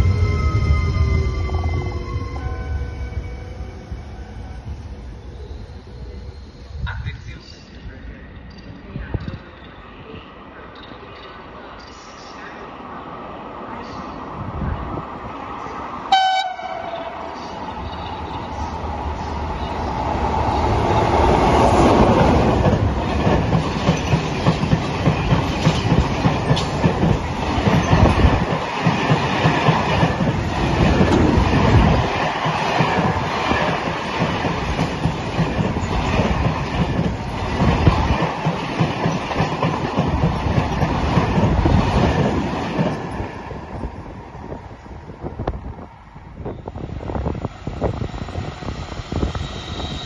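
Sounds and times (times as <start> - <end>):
train rumble: 0.0 - 50.0.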